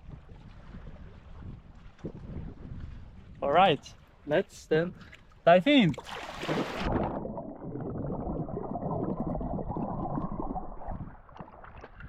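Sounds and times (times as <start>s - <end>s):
splash of person diving: 6.0s - 7.4s
muffled underwater bubbling: 6.6s - 12.0s.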